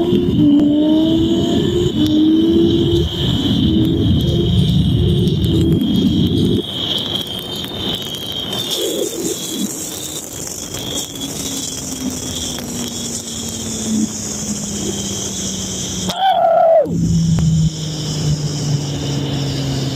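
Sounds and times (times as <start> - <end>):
motorcycle engine at full throttle: 0.0 - 8.0, 8.6 - 16.1, 16.8 - 19.9
steady high whine: 0.0 - 19.9
wind noise: 0.0 - 19.9
faint engine hum: 12.3 - 19.9.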